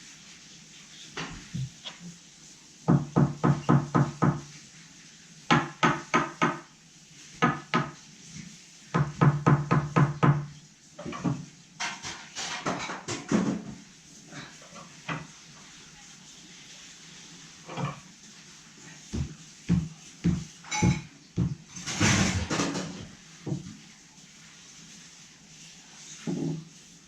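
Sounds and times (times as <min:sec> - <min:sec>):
knocks on a hard surface: 0:02.9 - 0:04.5, 0:05.5 - 0:06.7, 0:09.0 - 0:13.8, 0:19.1 - 0:23.7.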